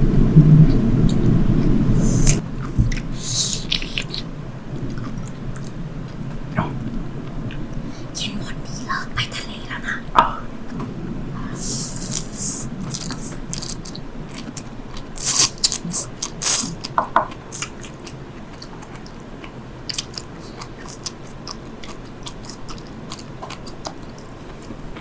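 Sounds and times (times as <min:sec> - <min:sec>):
crisp crunching while chewing: 0:12.9 - 0:24.8.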